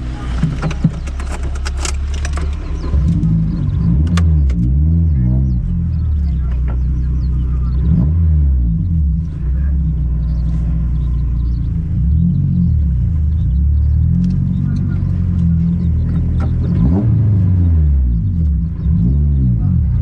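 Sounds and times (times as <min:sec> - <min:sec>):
car engine rumbling: 0:00.0 - 0:20.0
sharp clicks: 0:00.5 - 0:04.7.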